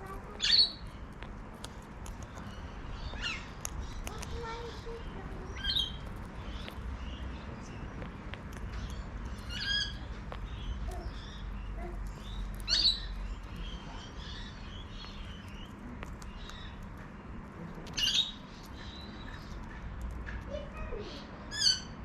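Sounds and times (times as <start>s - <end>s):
faint bird chirps: 0.0s - 1.0s, 2.2s - 19.8s
cockatoo calling: 8.8s - 14.6s.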